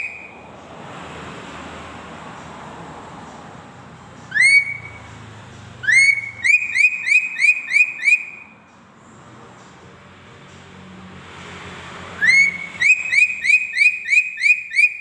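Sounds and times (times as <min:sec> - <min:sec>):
bird whistling rising notes: 0:00.0 - 0:00.4, 0:04.3 - 0:05.1, 0:05.8 - 0:08.5, 0:12.2 - 0:15.0.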